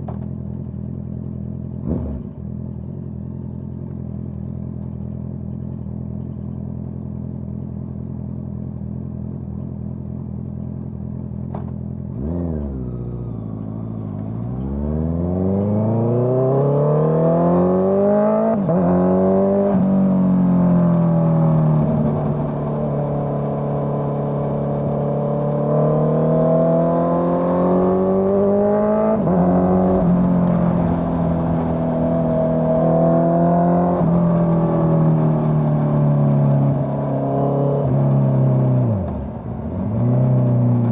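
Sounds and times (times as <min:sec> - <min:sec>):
motorcycle engine accelerating: 0:07.2 - 0:40.9.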